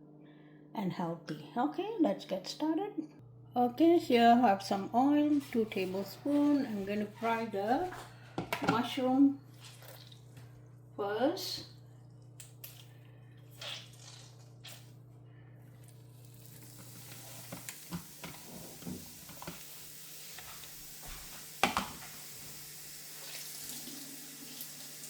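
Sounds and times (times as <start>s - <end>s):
mushrooms sizzling in hot oil: 16.4s - 25.0s.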